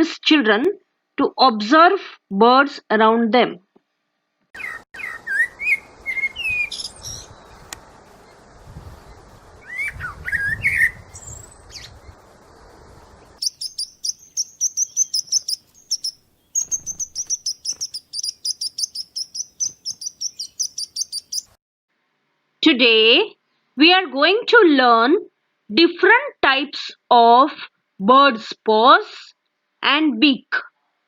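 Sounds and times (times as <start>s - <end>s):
rapid high bird chirps: 4.6s - 8.4s, 9.1s - 12.2s, 13.3s - 21.6s
songbirds whistling: 4.6s - 8.4s, 9.0s - 12.2s, 13.3s - 21.6s
steady hiss: 7.3s - 9.7s.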